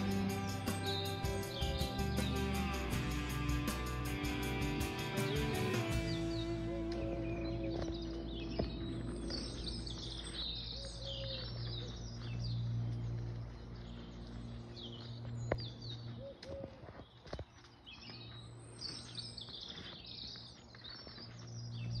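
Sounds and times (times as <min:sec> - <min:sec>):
steady low rumble: 0:00.0 - 0:16.2
birds chirping and singing: 0:00.0 - 0:22.0.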